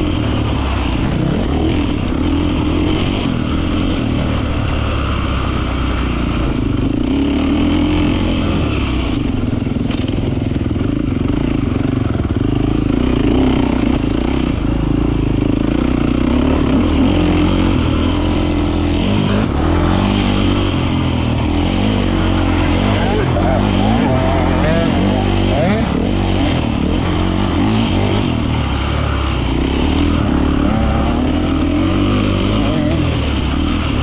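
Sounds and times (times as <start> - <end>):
motocross bike engine revving: 12.4 - 34.0.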